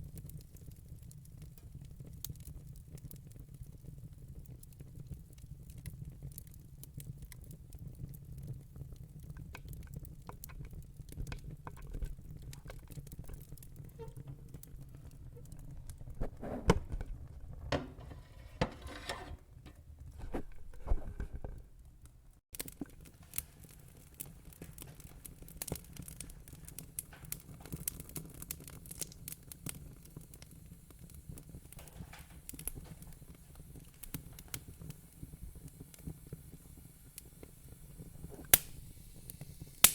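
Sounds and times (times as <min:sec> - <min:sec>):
wood fire crackling and popping: 0:00.0 - 0:18.1, 0:19.6 - 0:39.9
fire low rumble: 0:22.6 - 0:39.9.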